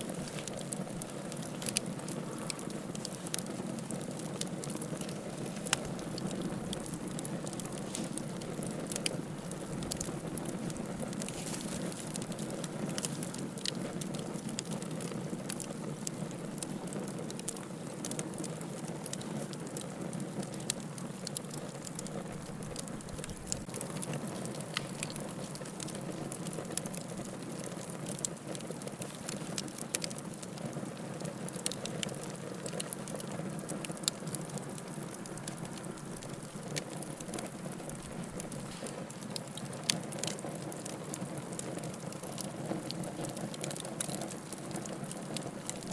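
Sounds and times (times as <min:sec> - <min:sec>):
fire hissing: 0:00.0 - 0:19.8, 0:20.4 - 0:28.1, 0:31.8 - 0:40.4
fire crackling and popping: 0:00.0 - 0:45.9.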